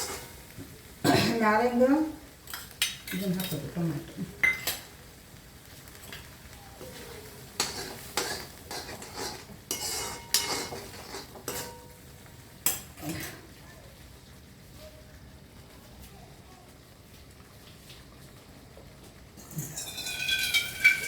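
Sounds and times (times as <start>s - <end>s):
metal spoon scraping a pot: 0.0s - 0.4s, 7.6s - 11.9s, 19.4s - 21.0s.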